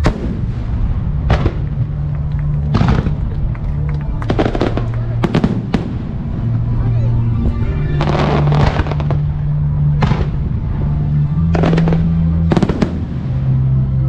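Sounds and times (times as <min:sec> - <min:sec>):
fireworks bangs and crackle: 0:00.0 - 0:06.7, 0:08.0 - 0:10.6, 0:11.4 - 0:13.8
loud music over loudspeakers: 0:04.3 - 0:13.4.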